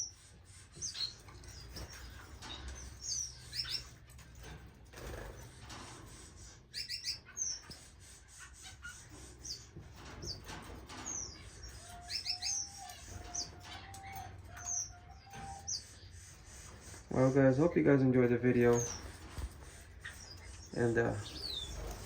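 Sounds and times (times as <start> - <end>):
wings fluttering: 18.4 - 22.0.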